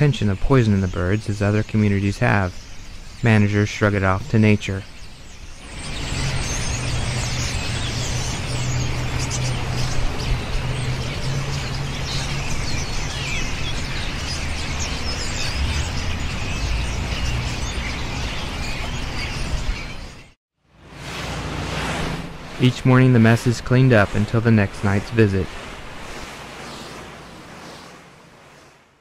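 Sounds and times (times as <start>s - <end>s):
steady low hum: 20.8s - 29.0s.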